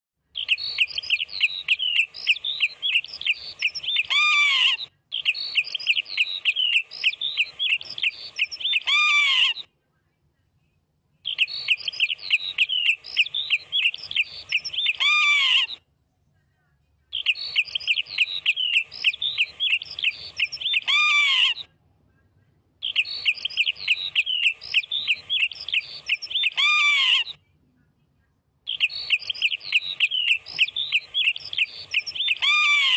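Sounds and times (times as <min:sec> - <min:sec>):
bird chirping in fast runs: 0:00.3 - 0:08.9, 0:11.3 - 0:15.0, 0:17.2 - 0:20.9, 0:22.8 - 0:26.6, 0:28.7 - 0:32.9.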